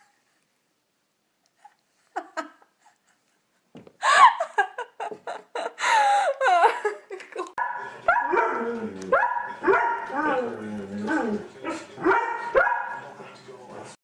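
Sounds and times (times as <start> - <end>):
loud laughter: 4.0 - 8.1.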